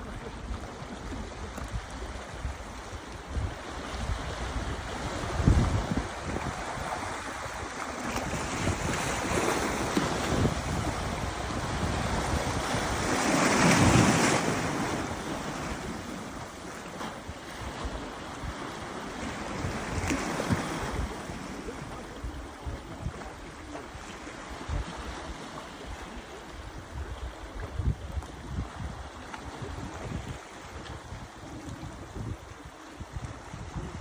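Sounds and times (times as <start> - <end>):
sea waves washing on beach: 0.0 - 34.0
wind buffeting microphone: 0.0 - 34.0.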